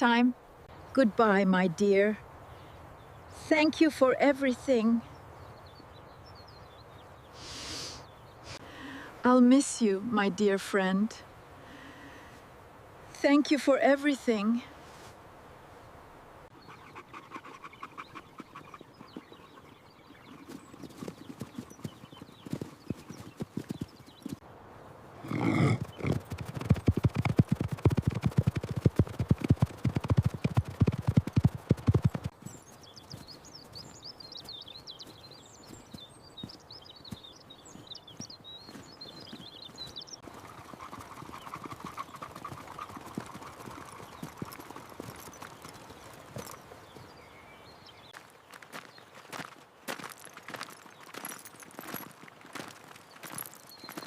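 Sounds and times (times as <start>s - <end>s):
birds chirping: 0.0s - 12.2s, 16.0s - 24.5s, 25.2s - 54.0s
horse hooves clip-clopping: 17.0s - 24.4s, 25.8s - 47.4s, 48.0s - 54.0s.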